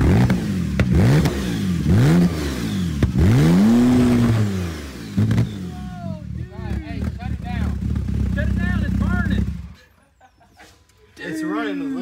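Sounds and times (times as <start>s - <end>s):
sharp exhaust pops: 0.0s - 5.6s, 6.9s - 9.8s
car engine revving: 0.0s - 9.8s.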